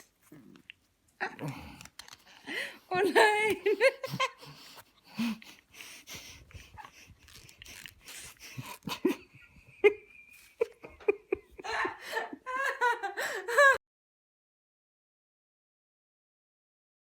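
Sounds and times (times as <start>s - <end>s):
person laughing: 2.6s - 5.6s, 6.2s - 13.8s.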